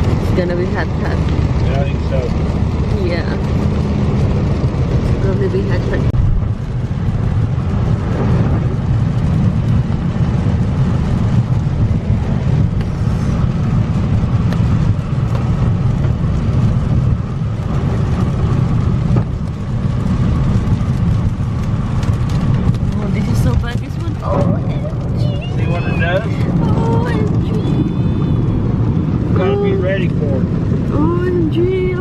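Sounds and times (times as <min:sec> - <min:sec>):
engine and tyres rumbling: 0:00.0 - 0:32.0
hiss of water and rain: 0:00.0 - 0:32.0.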